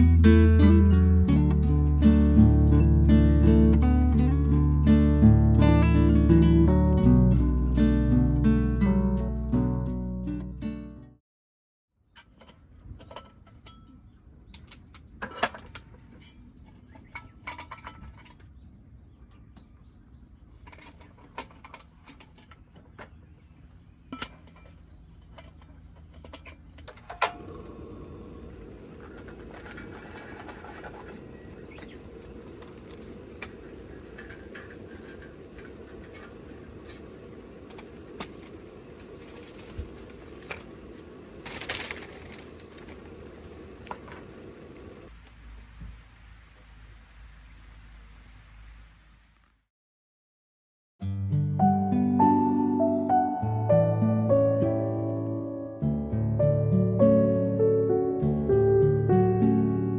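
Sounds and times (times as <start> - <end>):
low background hiss: 27.0 - 49.4
food packaging rustling: 27.4 - 45.1.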